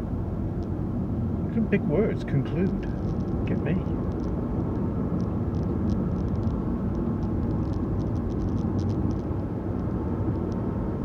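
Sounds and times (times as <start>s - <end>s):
engine and tyre rumble: 0.0s - 11.0s
small ticks and rattles: 2.6s - 10.7s.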